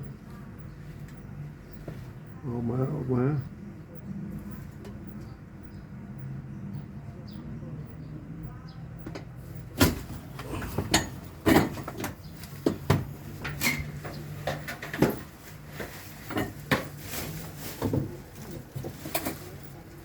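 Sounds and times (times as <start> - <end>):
hard objects knocking and clattering: 9.8 - 19.5.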